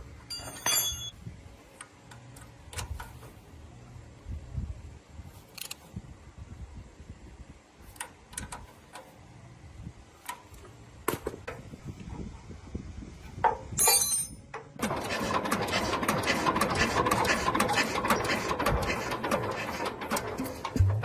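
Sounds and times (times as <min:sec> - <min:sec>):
machine running with busy rattle: 0:14.8 - 0:21.0.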